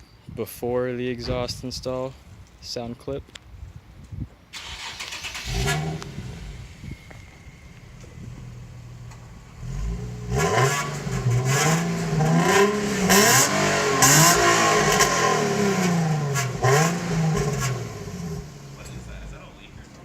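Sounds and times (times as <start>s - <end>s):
car engine idling and revving: 4.6s - 20.0s.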